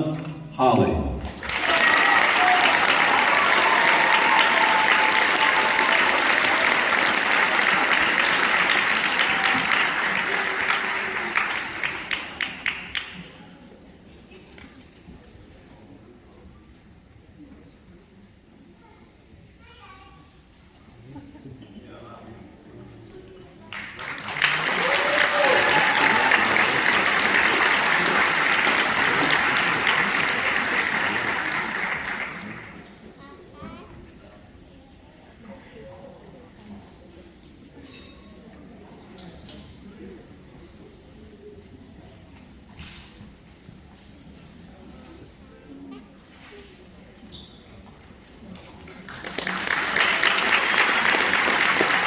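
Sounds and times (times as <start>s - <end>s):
audience applauding: 1.3s - 13.4s, 23.7s - 32.9s, 48.9s - 52.0s
cheers and whoops: 1.5s - 7.0s, 24.4s - 27.0s.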